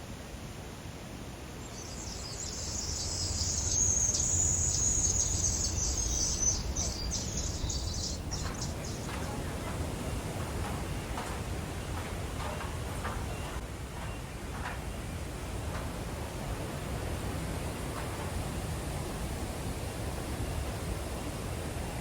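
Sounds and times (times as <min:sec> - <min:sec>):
insects chirring: 0:01.6 - 0:13.6.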